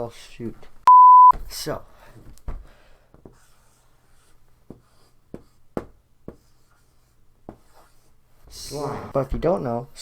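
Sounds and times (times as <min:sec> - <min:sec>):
marker scratching on whiteboard: 0:03.2 - 0:09.3
marker tapping on board: 0:04.7 - 0:06.7, 0:07.5 - 0:07.9.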